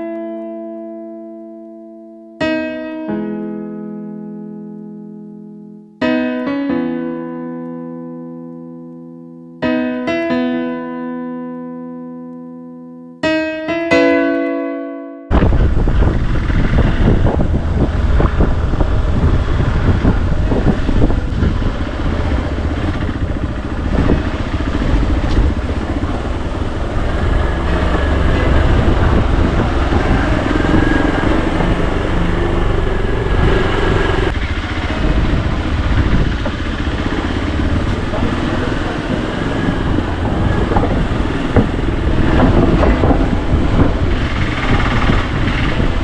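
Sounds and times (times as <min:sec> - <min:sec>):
motorcycle engine running: 0:15.3 - 0:46.0
wind noise: 0:15.3 - 0:46.0.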